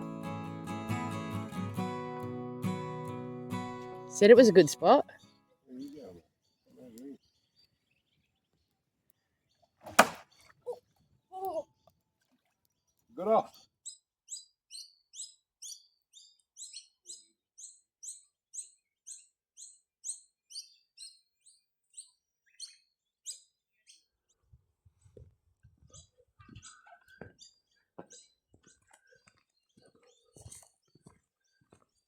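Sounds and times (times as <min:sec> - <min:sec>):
small bird chirping: 0:04.8 - 0:09.7, 0:13.5 - 0:24.1, 0:25.8 - 0:32.0.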